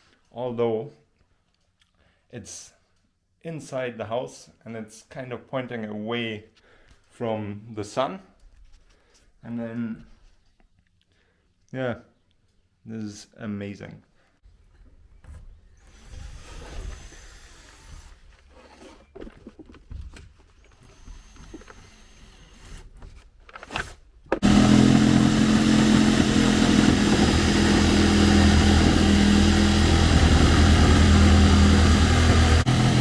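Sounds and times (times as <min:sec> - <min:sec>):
engine running steadily: 0:24.4 - 0:33.0.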